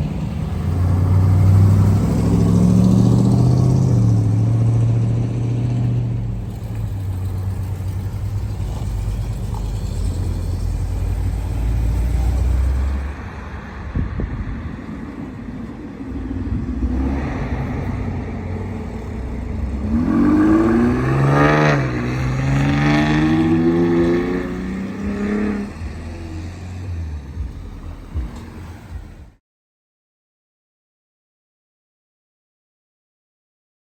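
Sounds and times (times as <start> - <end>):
car engine revving: 0.0 - 29.4.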